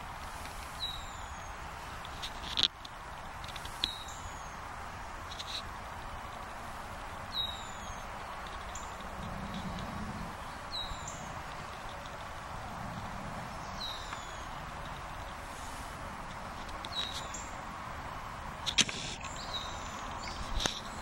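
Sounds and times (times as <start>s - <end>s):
steady background hiss: 0.0s - 21.0s
bird chirping: 0.8s - 1.6s, 7.3s - 12.3s, 13.5s - 15.3s, 16.8s - 17.6s, 19.2s - 21.0s.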